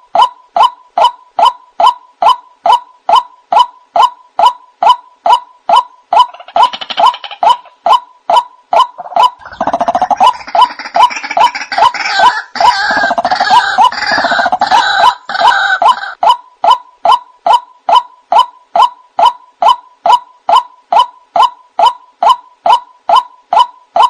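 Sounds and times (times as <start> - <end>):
harsh chorus of bird calls: 8.7 - 16.4.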